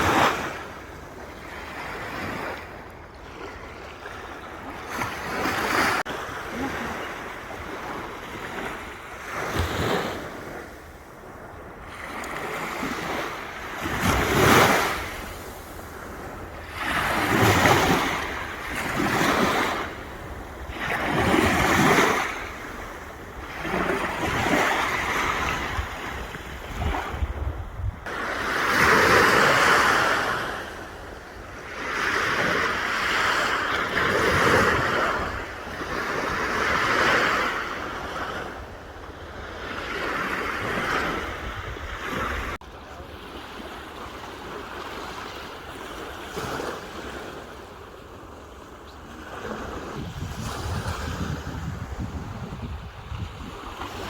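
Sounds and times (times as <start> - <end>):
sea waves breaking: 0.0 - 54.0
wind rumbling on microphone: 4.5 - 32.8, 33.8 - 42.6, 49.3 - 54.0.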